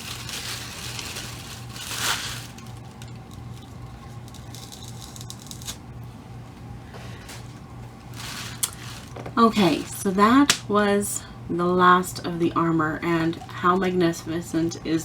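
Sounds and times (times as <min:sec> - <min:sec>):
wrapping material rustling: 0:00.0 - 0:05.8, 0:08.0 - 0:10.6
steady low hum: 0:00.0 - 0:15.0.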